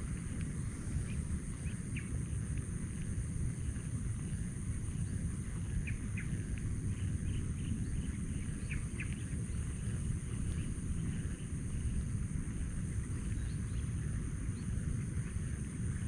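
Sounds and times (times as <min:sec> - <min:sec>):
low rumble: 0:00.0 - 0:16.0
small birds chirping: 0:03.7 - 0:12.0.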